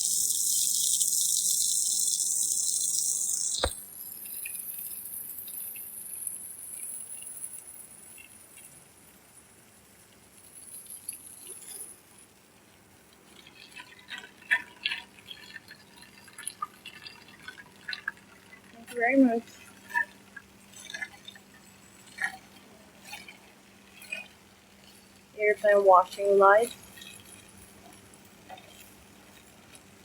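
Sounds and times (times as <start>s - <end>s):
faint water noise: 11.0s - 30.0s
water drips and splashes: 13.2s - 25.6s.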